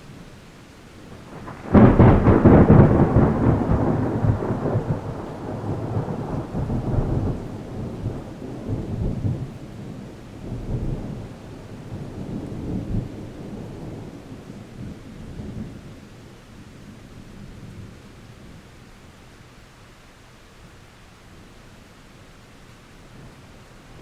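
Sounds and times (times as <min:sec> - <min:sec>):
rain falling: 0:00.0 - 0:24.0
thunder crack and rumble: 0:01.3 - 0:15.8.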